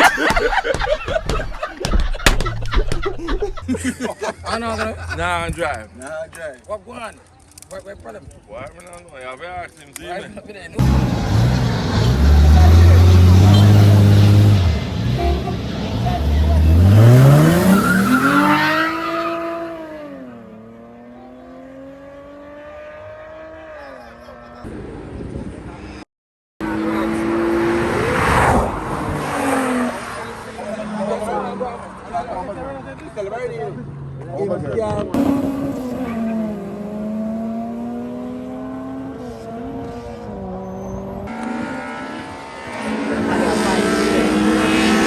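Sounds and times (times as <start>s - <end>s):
drag car engine accelerating: 10.8s - 23.5s, 35.1s - 45.0s.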